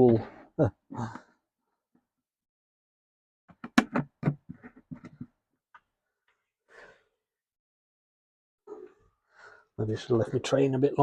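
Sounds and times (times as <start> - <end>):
handling clicks and knocks: 3.5 - 5.3.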